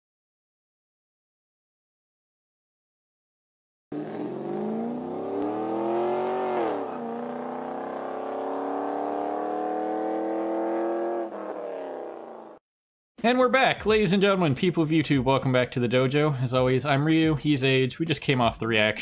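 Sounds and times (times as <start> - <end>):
car engine accelerating: 3.9 - 12.6.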